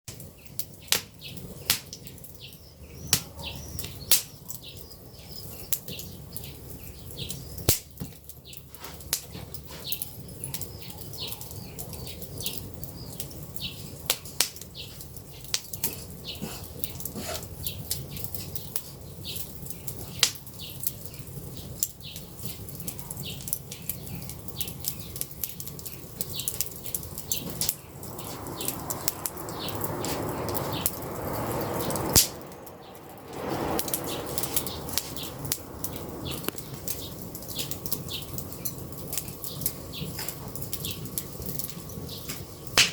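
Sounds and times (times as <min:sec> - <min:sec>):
campfire crackling and popping: 0:00.1 - 0:42.9
low rumble of flames: 0:00.1 - 0:42.9
loud rushing noise: 0:27.6 - 0:37.0.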